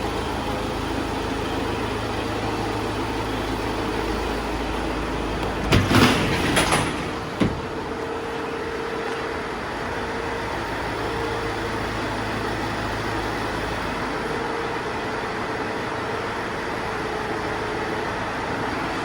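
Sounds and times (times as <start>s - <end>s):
diesel van engine idling: 0.0s - 19.0s
clatter of knocks: 5.4s - 8.1s.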